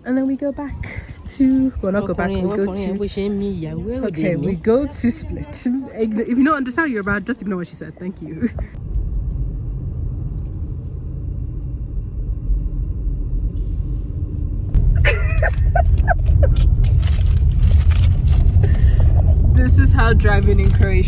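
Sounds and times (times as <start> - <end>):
car rumble inside cabin: 8.5 - 21.0.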